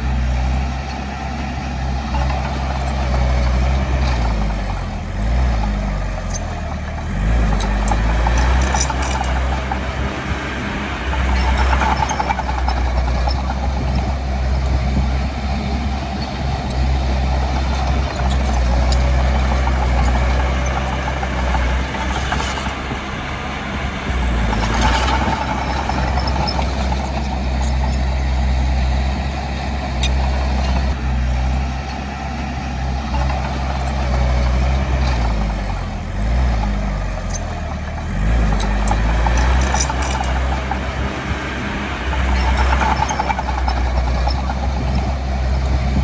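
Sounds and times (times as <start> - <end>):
diesel engine under load: 0.0 - 46.0
sharp metallic clicks and clanks: 5.4 - 15.1, 15.8 - 23.1, 23.8 - 29.0, 33.0 - 46.0.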